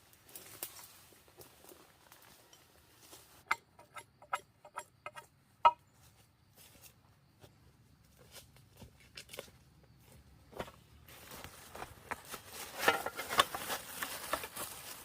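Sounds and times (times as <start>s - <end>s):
sharp knocks and clicks: 3.5s - 5.8s.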